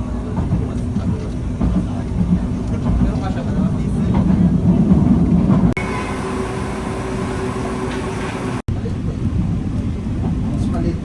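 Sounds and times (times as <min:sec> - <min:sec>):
train whine: 0:00.0 - 0:08.7
light-rail train rumbling: 0:00.0 - 0:11.0.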